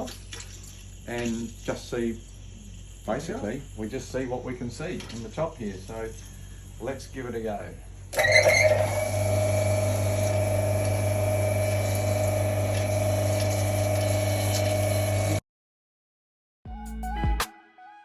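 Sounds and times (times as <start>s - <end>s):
grinding wheel motor humming: 8.2s - 15.4s.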